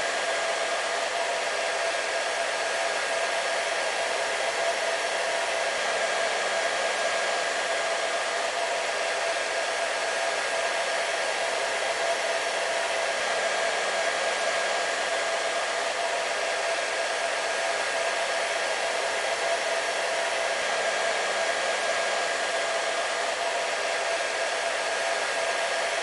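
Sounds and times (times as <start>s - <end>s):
hair dryer running: 0.0s - 26.0s.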